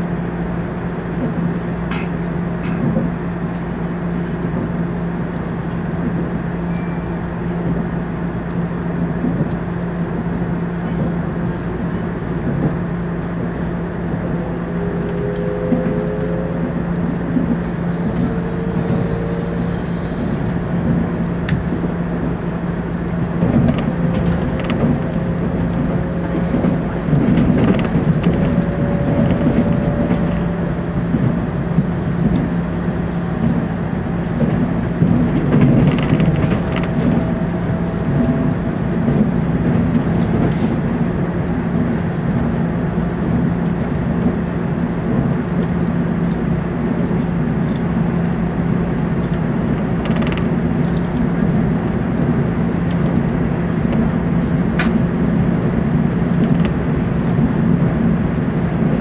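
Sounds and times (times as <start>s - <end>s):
electric train interior hum: 0.0s - 59.0s
wheel and rail rumble: 0.0s - 59.0s
faint rising whine: 11.9s - 43.1s.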